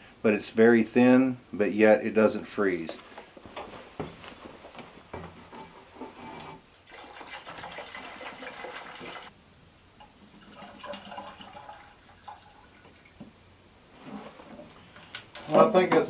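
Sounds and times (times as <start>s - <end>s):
liquid pouring into water tank: 6.8s - 9.3s, 10.0s - 13.2s.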